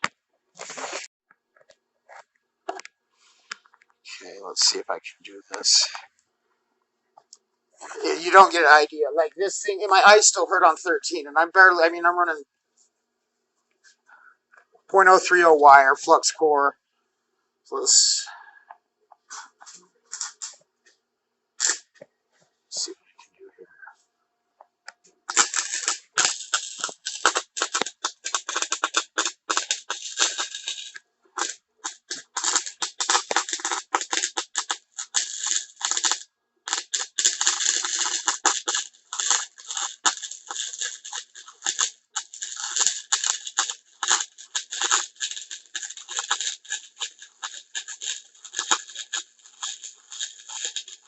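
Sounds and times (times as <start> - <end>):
welding arc crackling and sputtering: 0.0 - 1.1, 7.8 - 12.4, 14.9 - 16.4, 19.3 - 20.6, 21.6 - 22.0, 24.8 - 51.0.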